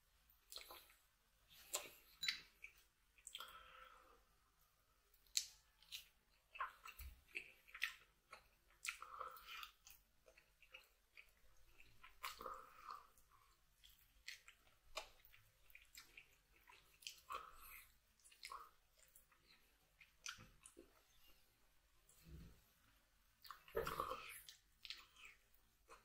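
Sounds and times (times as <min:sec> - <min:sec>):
chewing and gnawing meat: 0:05.2 - 0:21.2.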